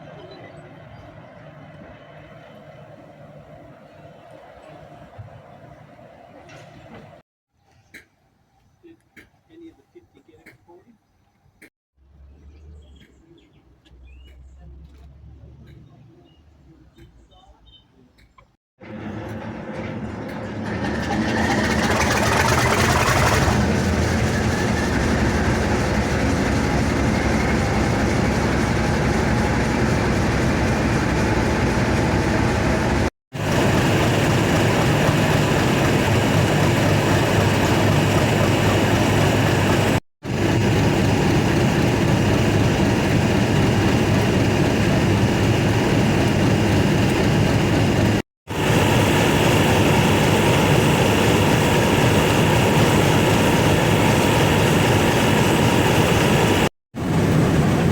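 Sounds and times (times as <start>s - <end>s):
diesel locomotive engine running: 18.8s - 57.9s.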